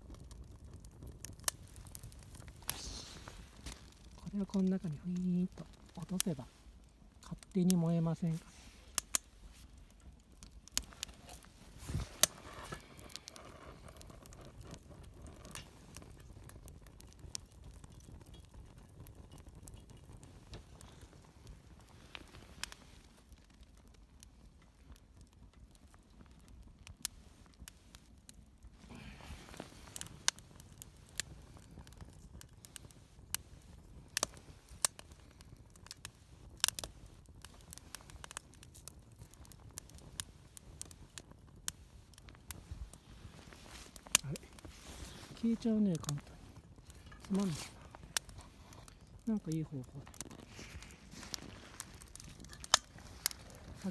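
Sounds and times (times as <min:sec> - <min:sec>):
wood fire crackling: 0:00.0 - 0:53.9
faint hiss: 0:02.1 - 0:10.0.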